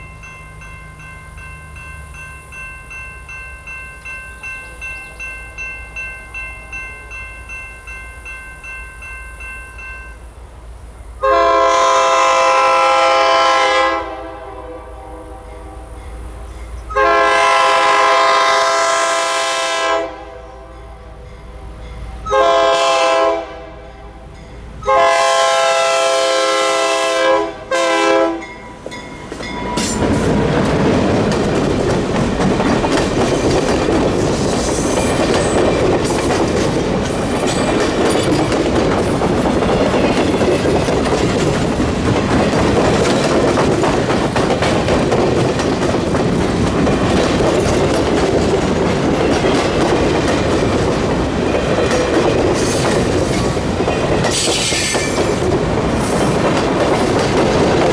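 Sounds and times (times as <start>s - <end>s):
train wheel and rail noise: 0.0s - 57.9s
locomotive air horn blasts: 11.2s - 16.0s, 16.9s - 21.2s, 22.2s - 24.2s, 24.8s - 28.5s
clickety-clack over rail joints: 28.4s - 57.9s.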